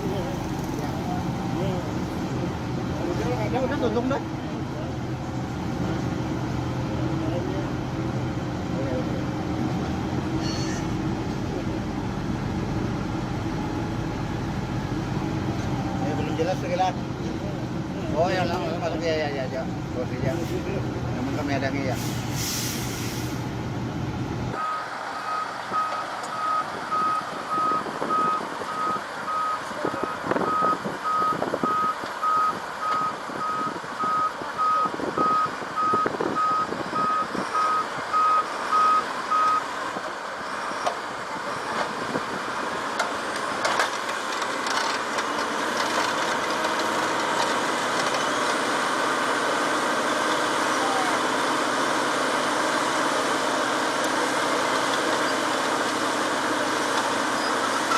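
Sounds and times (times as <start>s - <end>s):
reversing alarm beeping: 24.6s - 39.6s.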